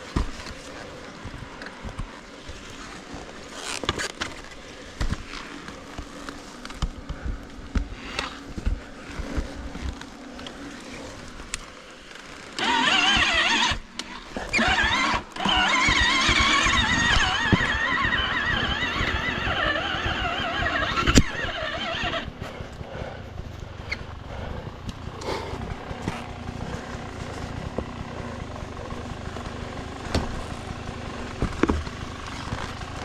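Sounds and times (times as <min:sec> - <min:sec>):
motorcycle engine revving: 0:12.5 - 0:33.0.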